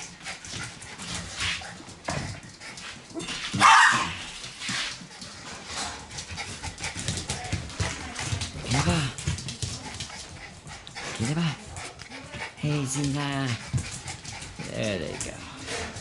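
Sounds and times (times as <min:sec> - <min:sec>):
soft dog sounds: 0:00.0 - 0:16.0
puppy barking: 0:03.6 - 0:04.3.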